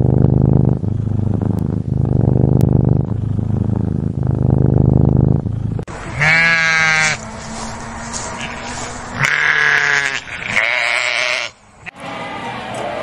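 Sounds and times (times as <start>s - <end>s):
cat purring: 0.2s - 5.9s
bleat: 6.1s - 7.2s, 8.3s - 11.6s.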